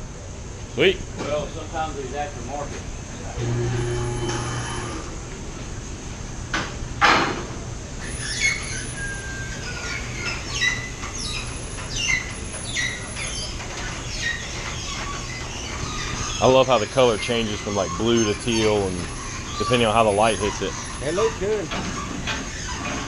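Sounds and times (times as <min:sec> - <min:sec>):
low hum: 0:03.3 - 0:06.1.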